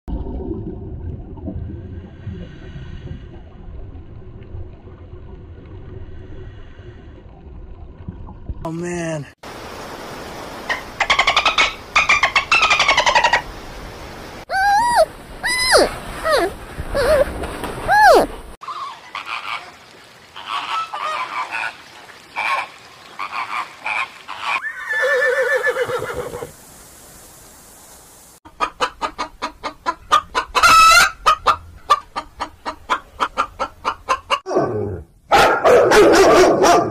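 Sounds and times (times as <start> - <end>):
underwater rumble and bubbles: 0.1 - 8.7
swans and ducks calling: 14.5 - 26.2
horse whinnying: 24.6 - 26.5.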